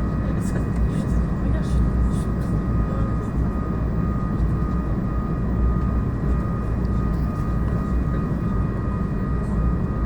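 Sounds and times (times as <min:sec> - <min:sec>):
airplane cabin rumble: 0:00.0 - 0:10.0.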